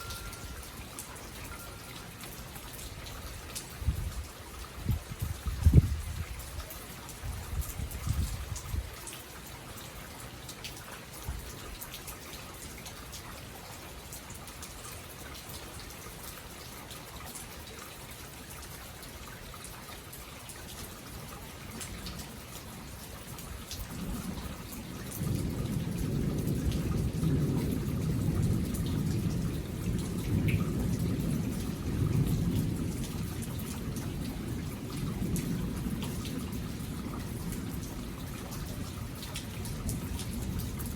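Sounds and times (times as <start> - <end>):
steady rain falling: 0.0 - 40.9
low rumble of thunder: 2.6 - 6.6, 7.3 - 9.0, 23.5 - 40.9.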